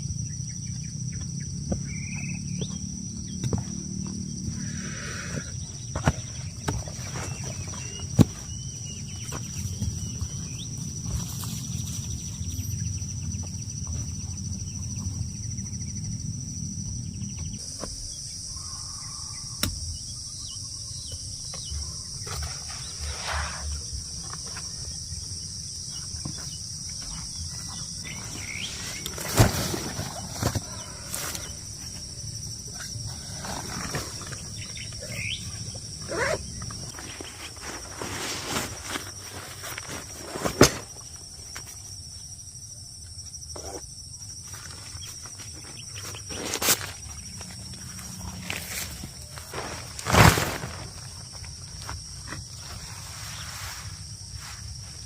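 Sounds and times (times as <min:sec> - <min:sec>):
high-pitched insect drone: 0:07.6 - 0:37.6.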